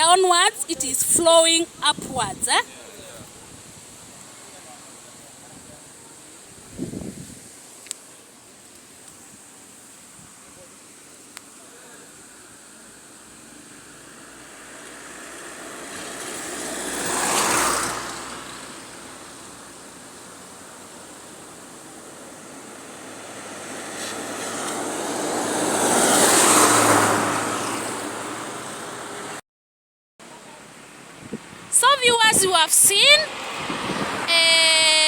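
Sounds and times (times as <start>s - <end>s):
vehicles driving past: 11.5s - 29.4s, 30.2s - 35.0s.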